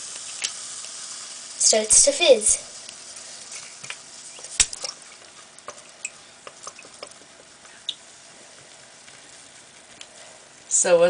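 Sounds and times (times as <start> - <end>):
small crackling bubble pops: 0.0 - 1.0, 2.8 - 10.2
baking soda and vinegar fizzing: 0.0 - 11.0.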